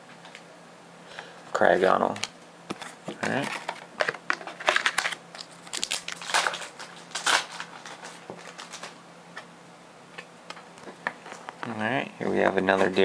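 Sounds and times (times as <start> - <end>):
foil wrapper crinkling and tearing: 3.3 - 9.0.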